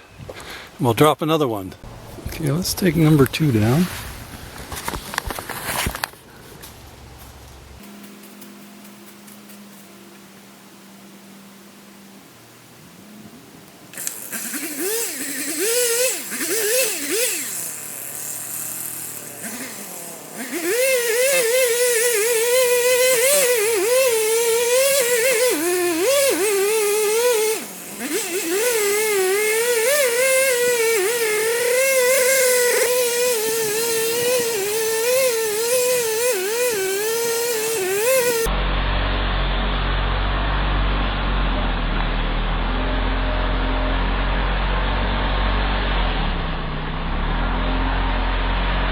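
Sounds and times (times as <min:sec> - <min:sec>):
chainsaw cutting a tree: 0:13.9 - 0:38.6.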